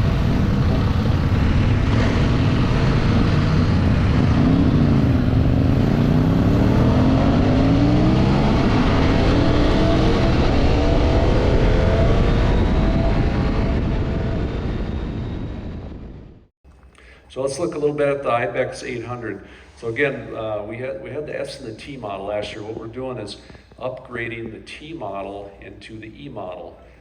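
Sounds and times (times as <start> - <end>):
heavy rushing noise: 0.0 - 16.5
motorcycle engine accelerating: 0.0 - 16.5.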